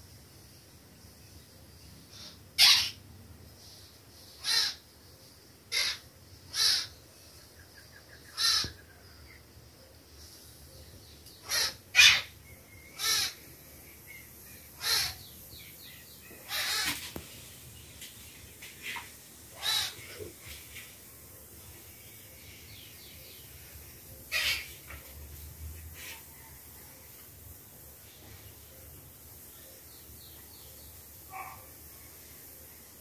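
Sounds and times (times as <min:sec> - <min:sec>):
bird harsh calls: 0:02.1 - 0:03.0, 0:04.3 - 0:04.9, 0:05.7 - 0:07.0, 0:07.6 - 0:09.1, 0:11.4 - 0:17.2, 0:18.8 - 0:20.3, 0:24.3 - 0:25.0.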